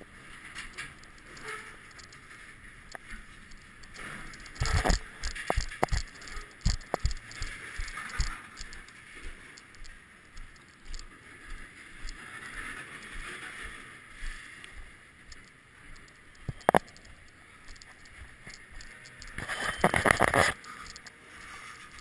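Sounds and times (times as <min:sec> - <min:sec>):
freight train cars rolling on rails: 0:00.0 - 0:09.8
footsteps crunching on gravel: 0:04.4 - 0:11.1.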